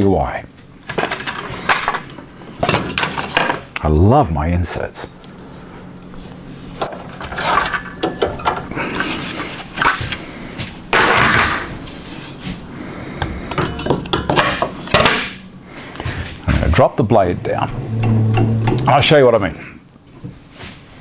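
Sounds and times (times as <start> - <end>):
knocks and rattles of parts: 6.8 - 10.1
scraping rustle: 16.0 - 19.2.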